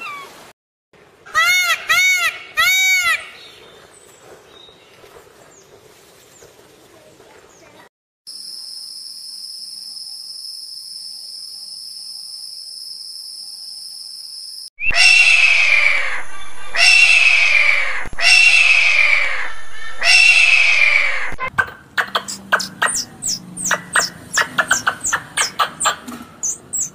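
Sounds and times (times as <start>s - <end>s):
high-pitched insect buzz: 8.3s - 14.7s
animal calling loudly: 14.8s - 26.9s.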